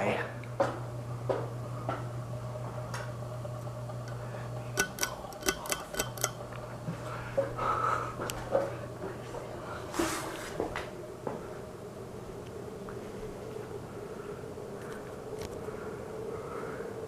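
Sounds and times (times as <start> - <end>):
ceiling fan motor humming: 0.0 - 17.0
fan speed switch clicks: 2.9 - 6.6.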